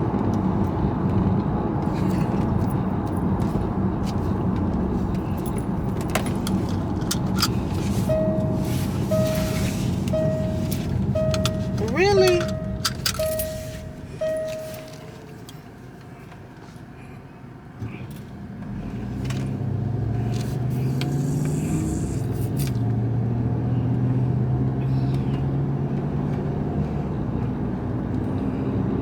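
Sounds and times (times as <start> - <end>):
car engine running hum: 0.0 - 29.0
car dashboard warning chime: 6.4 - 15.4.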